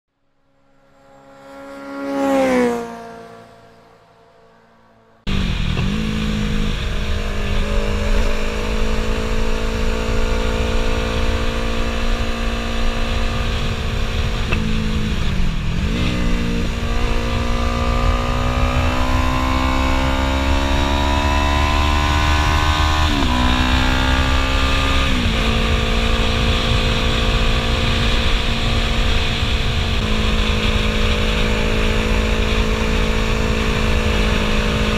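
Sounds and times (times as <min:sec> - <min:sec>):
wind and road rush: 0:00.2 - 0:34.9
vehicle passing by: 0:00.5 - 0:10.3
motorcycle engine revving: 0:00.5 - 0:34.9.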